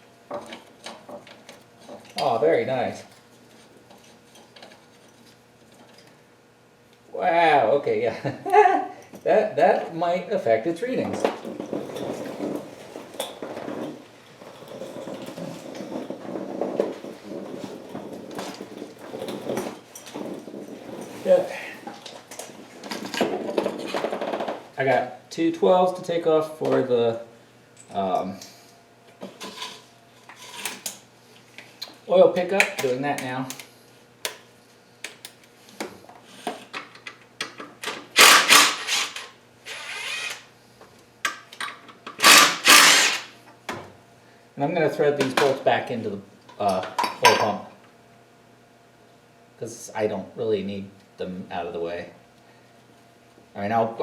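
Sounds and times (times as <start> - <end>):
hand tools and metal parts clinking: 37.8 - 40.4, 41.6 - 43.3
ratchet rapid clicking: 38.2 - 40.4, 42.2 - 43.4.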